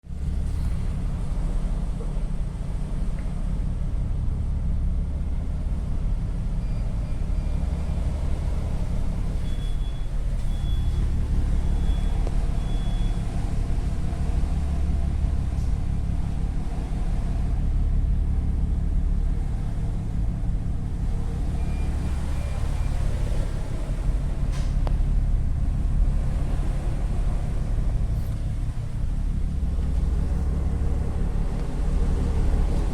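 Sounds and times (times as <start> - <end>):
ferry engines rumbling: 0.0 - 32.9
wind and water rushing: 19.4 - 32.9.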